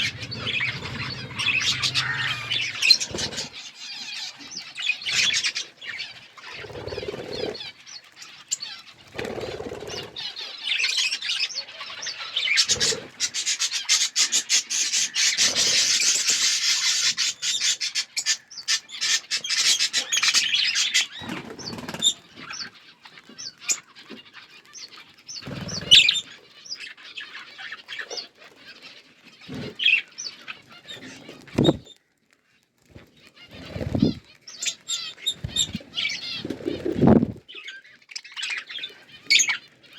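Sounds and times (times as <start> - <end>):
wing flapping: 0.0 - 4.2, 5.0 - 7.7, 8.7 - 10.4, 19.9 - 22.6, 24.9 - 26.3, 30.7 - 31.9, 32.9 - 37.5
budgerigars chattering and chirping: 0.0 - 32.0, 33.0 - 39.9.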